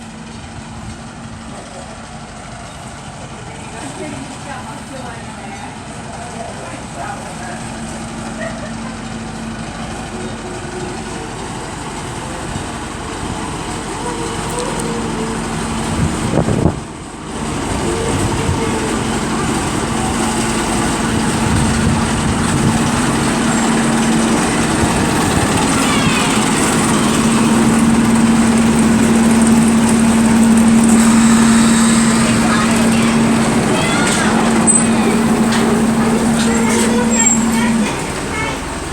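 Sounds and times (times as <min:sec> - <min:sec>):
rail vehicle rolling rumble: 0:00.0 - 0:38.9.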